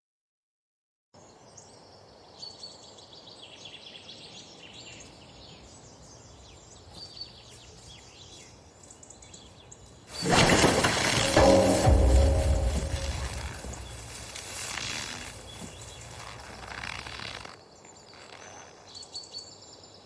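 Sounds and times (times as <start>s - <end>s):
birds chirping: 1.2s - 20.0s
loud sudden sound: 10.2s - 14.6s.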